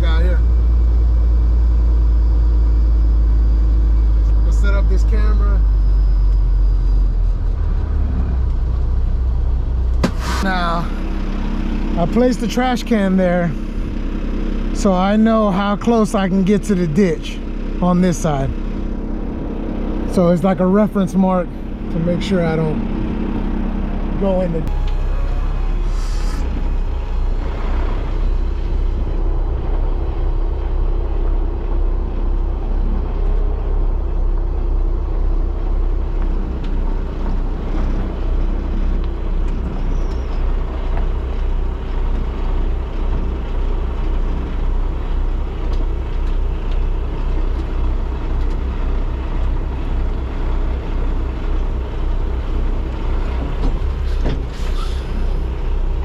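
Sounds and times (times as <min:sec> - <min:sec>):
diesel truck engine running: 0:00.0 - 0:56.0
air hiss: 0:10.0 - 0:10.5, 0:54.5 - 0:55.3.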